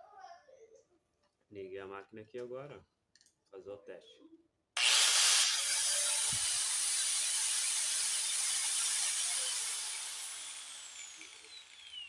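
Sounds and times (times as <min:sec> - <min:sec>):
angle grinder whining: 0:04.8 - 0:12.0.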